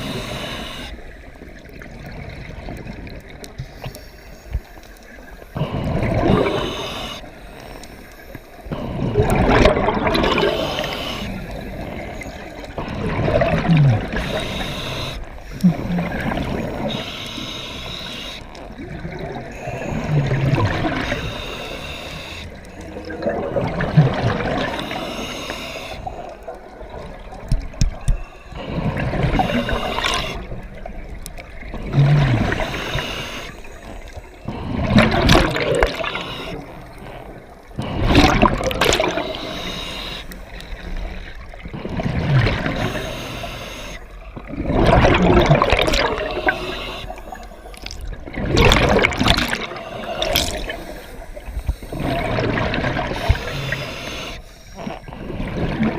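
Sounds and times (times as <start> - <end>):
exhaled bubbles gushing: 5.6 - 7.2, 8.7 - 17.1, 18.6 - 21.5, 22.7 - 25.1, 26.0 - 33.0, 34.0 - 39.5, 40.5 - 43.0, 44.2 - 54.0, 54.8 - 55.9.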